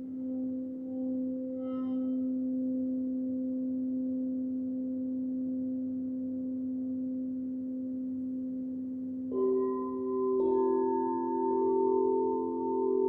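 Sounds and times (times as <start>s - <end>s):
crystal singing bowl tone: 0.0s - 13.0s.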